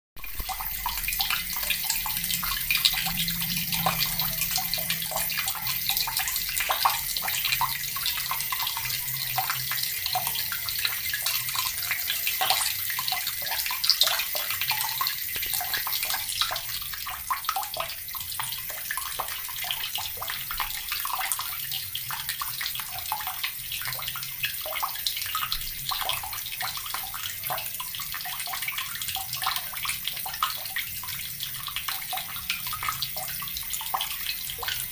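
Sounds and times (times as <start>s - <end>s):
tap water pouring into bucket: 0.2s - 34.9s.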